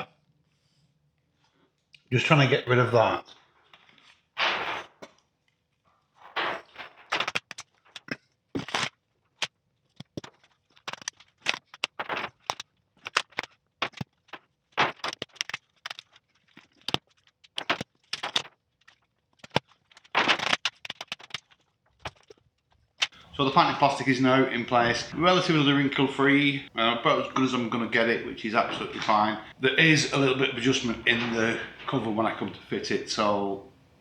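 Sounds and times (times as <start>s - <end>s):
plastic sheet crinkling: 6.2s - 8.9s, 10.2s - 33.4s.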